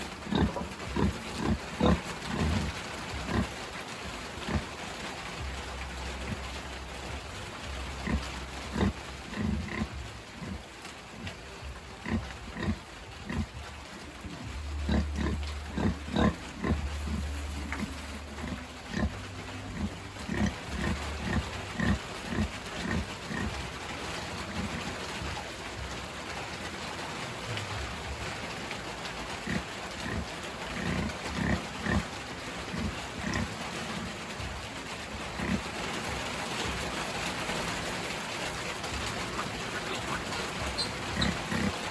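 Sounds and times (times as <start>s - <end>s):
pigs grunting: 0.0s - 3.6s, 4.4s - 4.8s, 7.9s - 23.7s, 24.4s - 25.4s, 29.4s - 34.3s, 35.2s - 41.9s.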